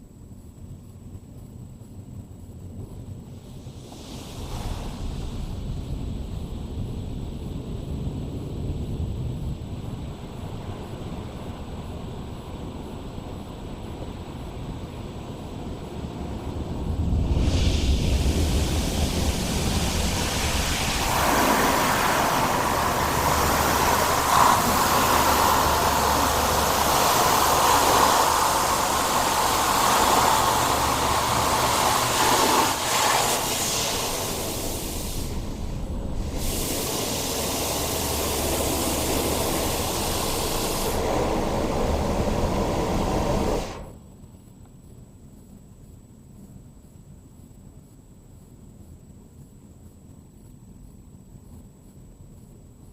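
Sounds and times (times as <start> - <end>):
low hum: 2.2 - 44.1
car wash water spray and machinery: 2.8 - 44.0.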